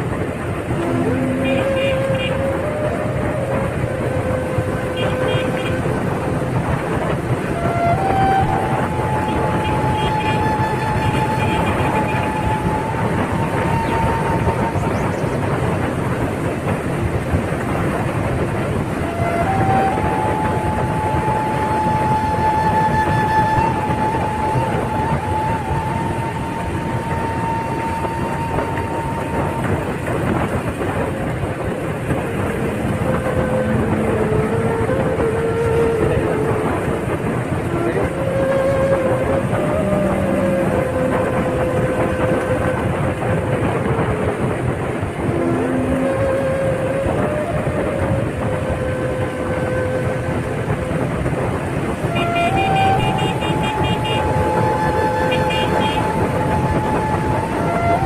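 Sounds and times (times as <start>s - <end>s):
moving vehicle rumbling: 0.0s - 58.0s
road traffic: 0.0s - 58.0s
long held car horn: 1.3s - 2.4s, 5.0s - 5.9s, 9.2s - 12.6s, 52.2s - 54.4s, 55.3s - 56.0s.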